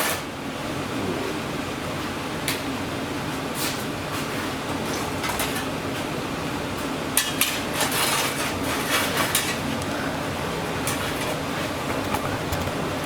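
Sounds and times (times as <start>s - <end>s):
steady hum: 7.8s - 13.0s.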